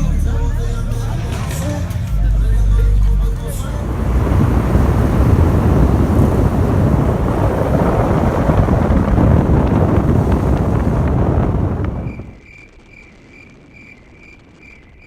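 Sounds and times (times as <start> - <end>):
loud vehicle rumble: 0.0 - 12.3
wind buffeting microphone: 3.2 - 15.0.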